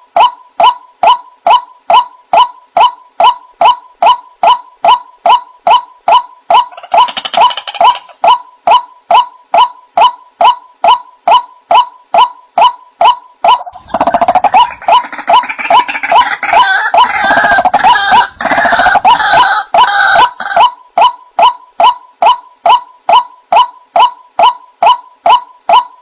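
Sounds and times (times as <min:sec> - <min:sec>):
overlapping higher bird calls: 0:00.2 - 0:26.0.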